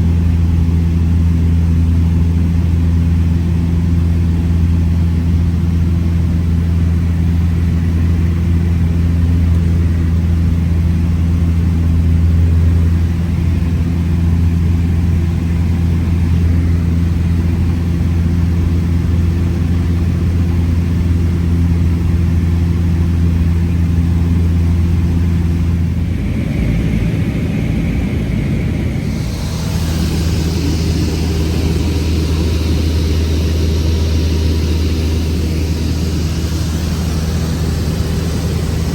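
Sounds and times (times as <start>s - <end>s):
airplane engine and propeller droning: 0.0s - 38.9s
steady hiss: 26.0s - 38.9s.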